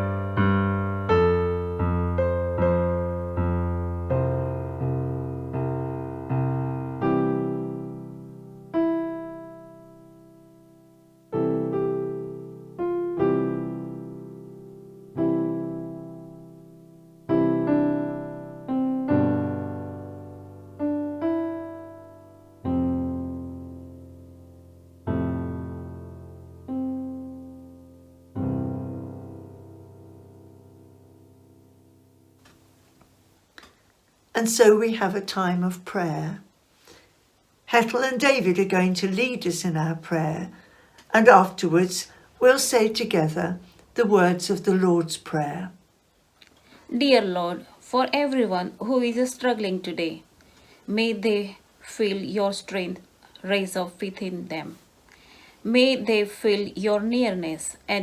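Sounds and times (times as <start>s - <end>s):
slow solo piano: 0.0s - 32.8s.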